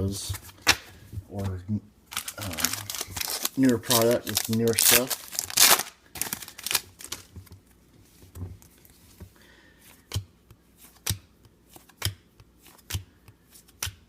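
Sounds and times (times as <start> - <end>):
card pack rustle: 2.1 - 7.4.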